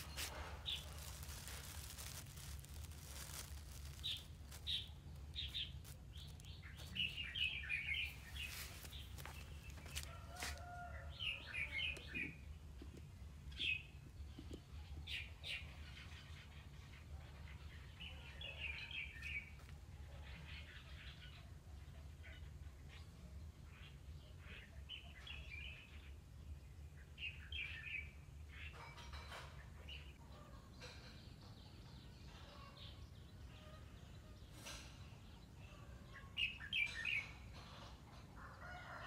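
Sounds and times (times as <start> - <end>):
small birds chirping: 0.0 - 19.6.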